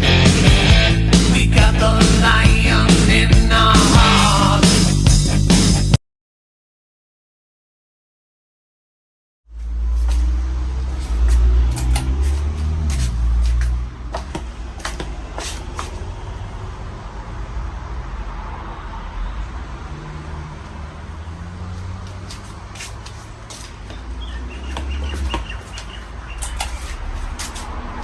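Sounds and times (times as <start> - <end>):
fan clicks: 11.7 - 12.5, 25.8 - 27.7.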